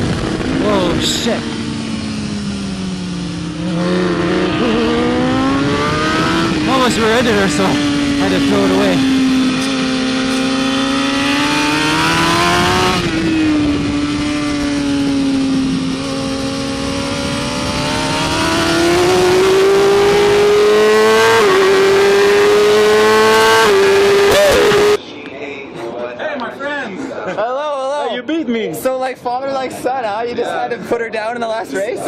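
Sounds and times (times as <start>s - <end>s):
motorcycle engine at high revs: 0.0s - 25.0s
wind rush: 0.0s - 25.0s.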